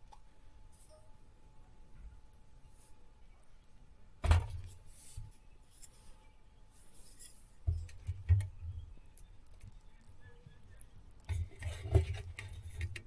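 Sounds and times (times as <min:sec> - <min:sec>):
rustling: 0:04.3 - 0:13.0.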